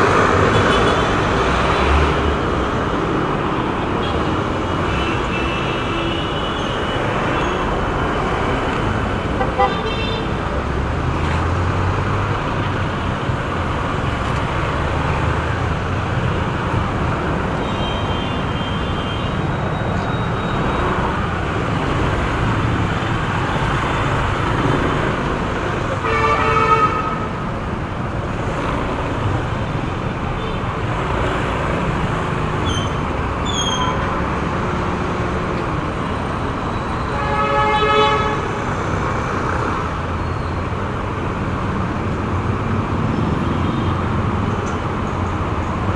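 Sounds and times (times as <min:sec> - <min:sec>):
road traffic noise: 0:00.0 - 0:45.9
vehicle horn honking: 0:26.0 - 0:27.2, 0:37.1 - 0:38.4.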